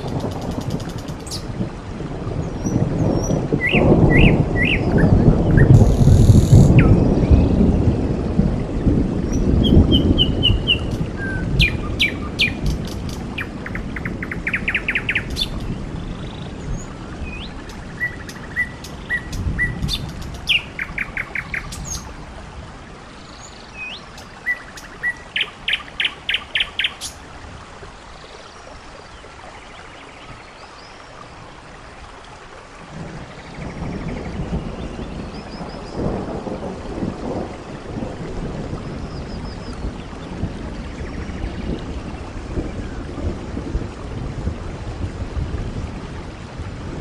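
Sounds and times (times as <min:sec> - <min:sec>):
birds chirping: 0:09.3 - 0:22.1, 0:23.1 - 0:27.2.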